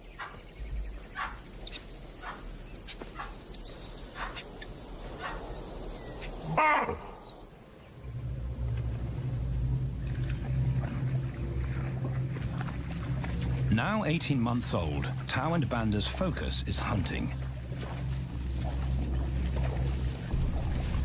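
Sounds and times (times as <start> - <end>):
animal alarm calls: 5.2 - 5.4, 6.2 - 7.4
loud animal barking call: 6.5 - 7.2
low steady hum: 6.9 - 21.0.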